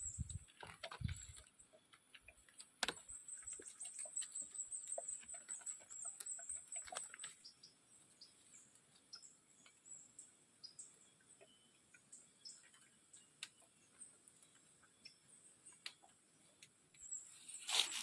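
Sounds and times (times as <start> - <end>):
small clicks and rustles: 0.0 - 7.5.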